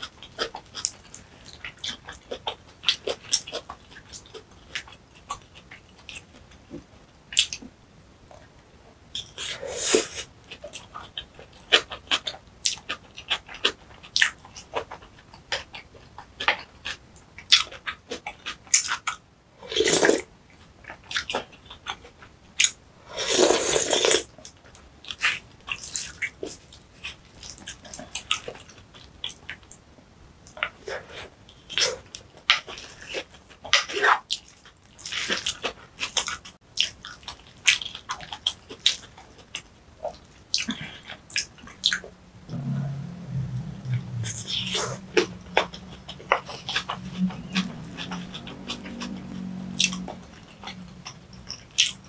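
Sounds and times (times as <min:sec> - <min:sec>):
person chewing: 0:09.2 - 0:29.7, 0:30.5 - 0:42.8, 0:43.6 - 0:52.0
rushes of noise: 0:42.3 - 0:51.5.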